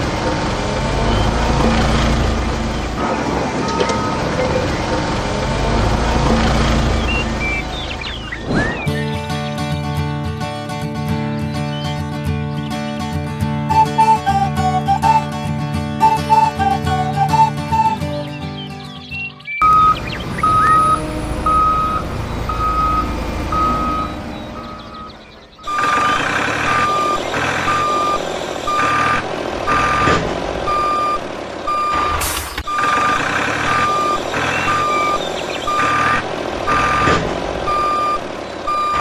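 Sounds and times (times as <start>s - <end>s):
low engine rumble: 0.0s - 9.9s, 19.2s - 39.0s
reversing alarm beeping: 16.0s - 18.1s, 19.6s - 39.0s.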